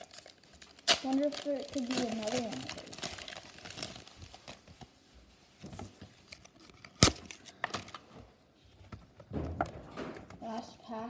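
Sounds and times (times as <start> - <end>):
cards rustling and crinkling: 0.0 - 5.0.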